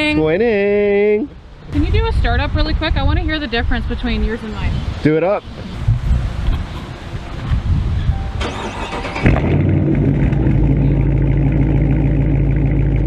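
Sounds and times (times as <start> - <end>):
car engine idling loudly: 9.3 - 13.0.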